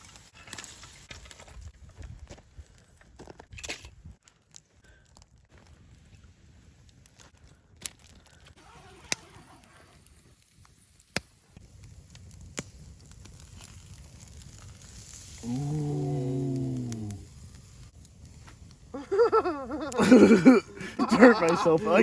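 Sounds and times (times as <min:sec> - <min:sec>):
person groaning: 0:15.4 - 0:17.2, 0:19.0 - 0:22.0.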